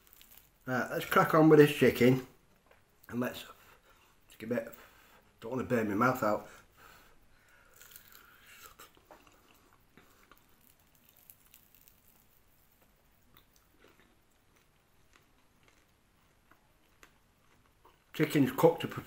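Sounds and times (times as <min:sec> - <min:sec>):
person crunching and chewing: 0:00.0 - 0:00.6, 0:07.6 - 0:18.2.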